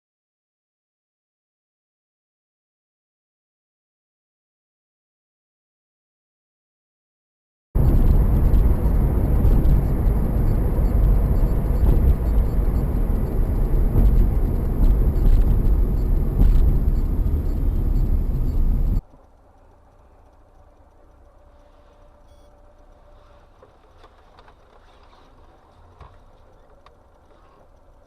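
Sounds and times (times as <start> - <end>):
vehicle road and engine rumble: 7.8 - 28.0.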